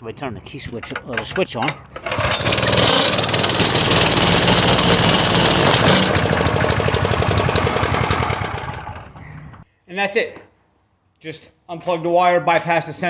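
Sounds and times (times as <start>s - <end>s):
small engine clattering loudly: 1.0s - 9.6s.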